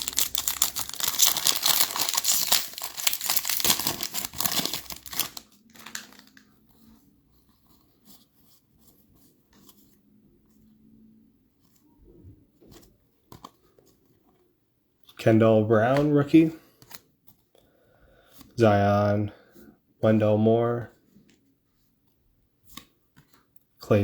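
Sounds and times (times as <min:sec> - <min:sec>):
card pack wrapper crinkling and tearing: 0:00.0 - 0:06.4.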